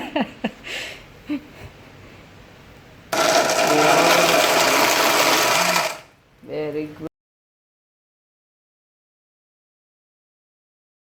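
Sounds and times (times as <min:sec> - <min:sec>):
blender motor running: 0:03.1 - 0:06.1.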